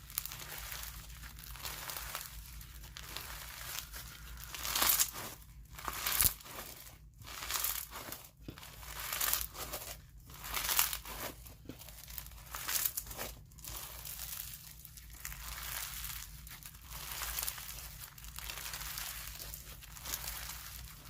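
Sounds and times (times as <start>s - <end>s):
slime crunching and crackling: 0.0s - 21.0s.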